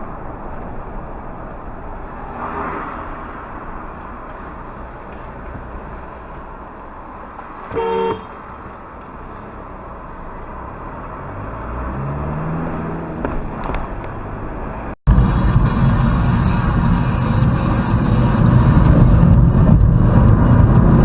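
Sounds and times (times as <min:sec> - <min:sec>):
road and engine noise: 0:00.0 - 0:21.0
vehicle engine accelerating: 0:00.0 - 0:21.0
car horn toot: 0:07.6 - 0:08.4.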